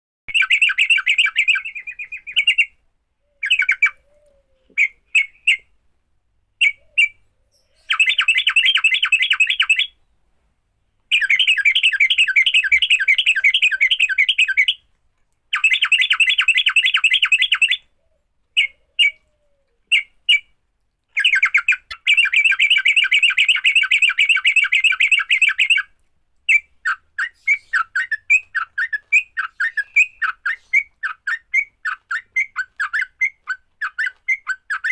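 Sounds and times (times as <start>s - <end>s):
bird chattering calls: 11.1s - 14.8s.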